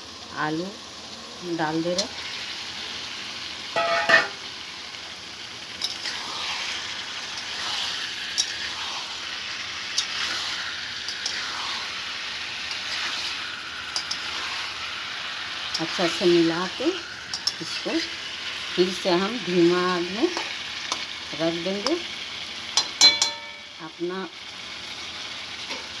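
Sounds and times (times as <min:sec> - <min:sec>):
food sizzling in a pan: 0:00.0 - 0:26.0
metal spoon scraping a pan: 0:03.8 - 0:04.4, 0:05.8 - 0:19.6, 0:20.2 - 0:21.1.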